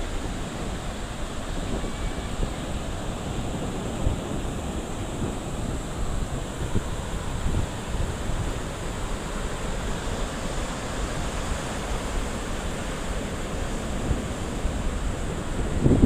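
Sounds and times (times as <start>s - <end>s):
surf washing onto beach: 0.0s - 16.0s
wind rumbling on microphone: 0.0s - 16.0s.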